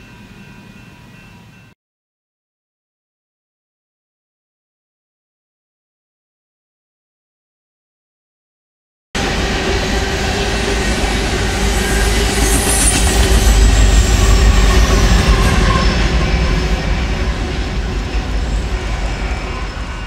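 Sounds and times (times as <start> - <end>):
freight train wheels rumbling: 0.0 - 1.8, 9.2 - 20.0
wheel squeal: 10.2 - 20.0.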